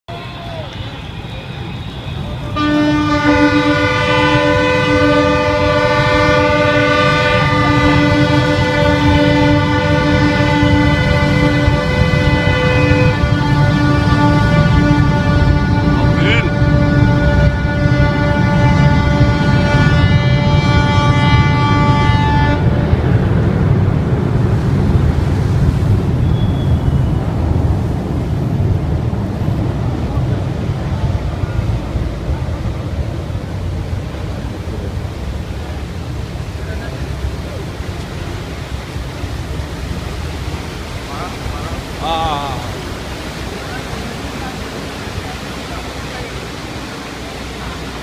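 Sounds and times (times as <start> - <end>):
low rumbling noise: 0.1 - 48.0
ship's horn long blast: 0.5 - 28.1.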